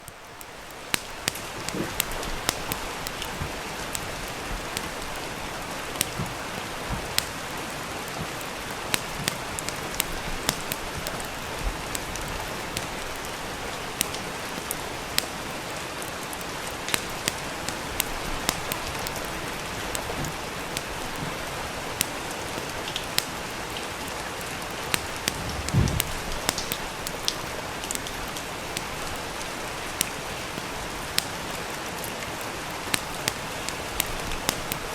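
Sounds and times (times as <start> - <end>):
steady rain: 0.0 - 34.9
wood fire crackling and popping: 0.0 - 34.9
low thump: 25.3 - 26.2.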